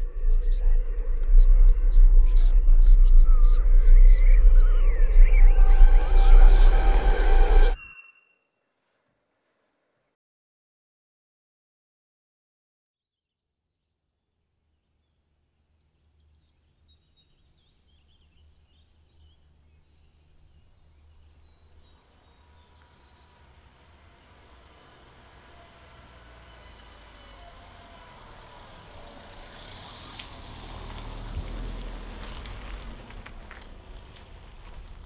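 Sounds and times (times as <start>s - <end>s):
vehicle rumbling: 0.0s - 7.8s, 20.9s - 35.0s
birds chirping: 0.0s - 8.2s, 16.2s - 30.2s.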